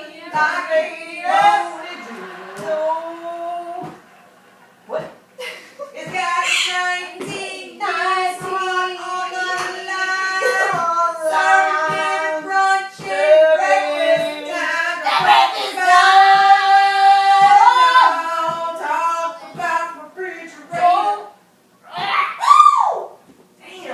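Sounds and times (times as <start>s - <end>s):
high voice singing: 6.0s - 19.9s.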